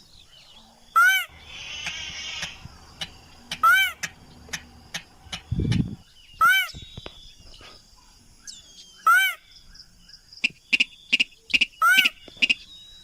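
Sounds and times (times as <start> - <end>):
bird lure call: 1.0 - 7.2, 10.4 - 13.0.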